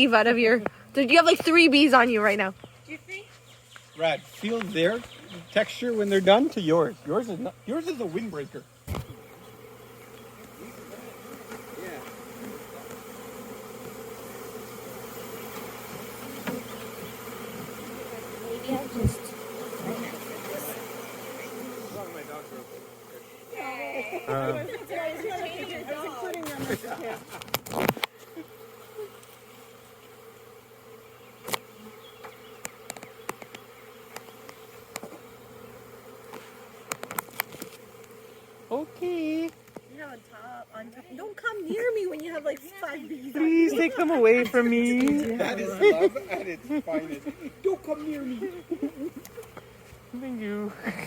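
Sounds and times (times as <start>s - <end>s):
swarm of bees buzzing: 0.0s - 2.4s, 4.0s - 51.0s
single bee flying past: 7.9s - 51.0s.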